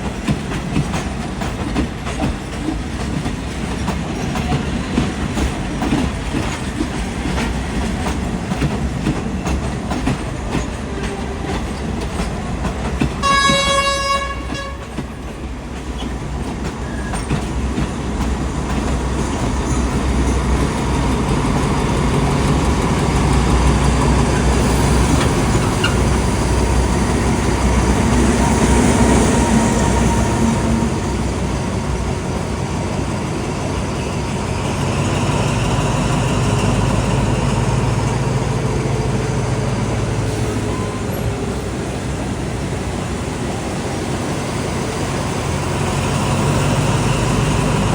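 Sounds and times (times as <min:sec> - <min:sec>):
train wheels clattering: 0:00.0 - 0:47.9
train horn blast: 0:13.2 - 0:15.1.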